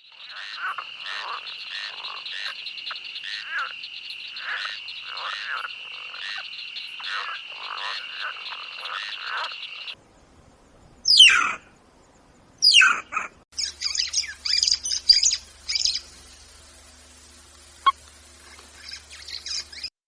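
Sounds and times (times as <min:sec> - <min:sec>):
frogs croaking: 0:00.0 - 0:10.0, 0:11.0 - 0:19.9
quick high bird chirps: 0:11.1 - 0:11.6, 0:12.6 - 0:16.1.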